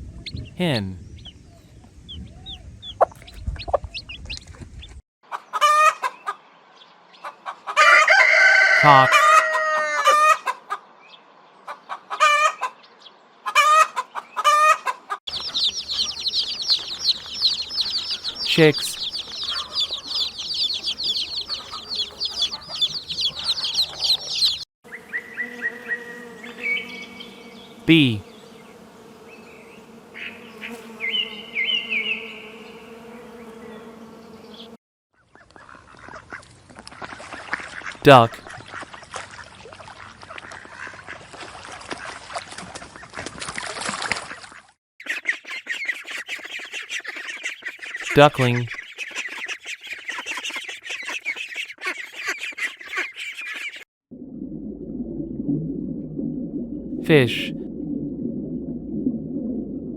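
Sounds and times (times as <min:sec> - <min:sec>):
chicks peeping: 0:00.0 - 0:06.4, 0:13.5 - 0:24.6, 0:45.0 - 0:53.8
rooster crowing: 0:07.8 - 0:10.5
bees buzzing: 0:15.3 - 0:34.8.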